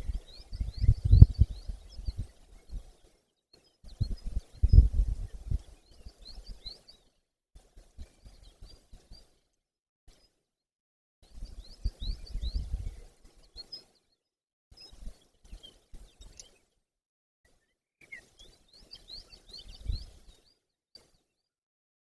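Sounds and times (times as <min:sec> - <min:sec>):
birds chirping: 0:00.0 - 0:07.1, 0:11.3 - 0:14.0, 0:14.8 - 0:16.7, 0:18.0 - 0:20.6.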